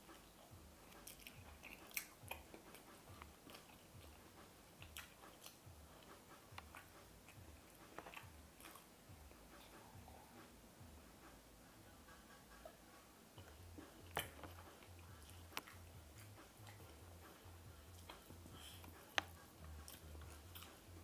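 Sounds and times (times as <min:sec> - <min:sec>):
person chewing food: 0:00.0 - 0:10.6, 0:12.0 - 0:21.0
wet mouth clicks: 0:00.9 - 0:04.2.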